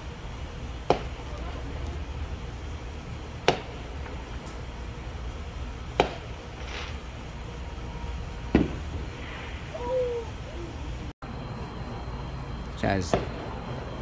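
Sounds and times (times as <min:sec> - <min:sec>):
fireworks popping: 0:05.9 - 0:07.1, 0:08.5 - 0:09.5.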